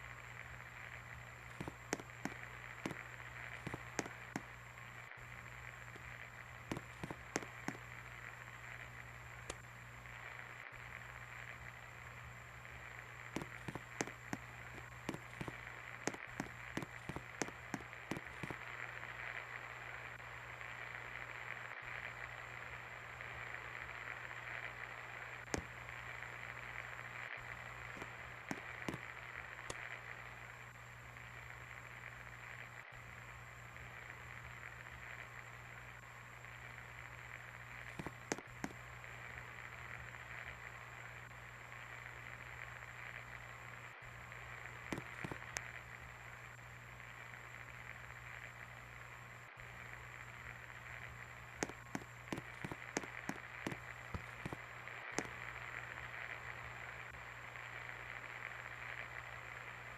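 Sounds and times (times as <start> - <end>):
faint clicks: 5.9 - 8.1.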